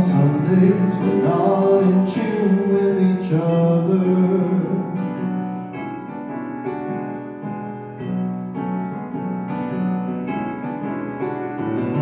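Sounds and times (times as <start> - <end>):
person singing: 0.0 - 5.3
piano chords: 0.0 - 12.0.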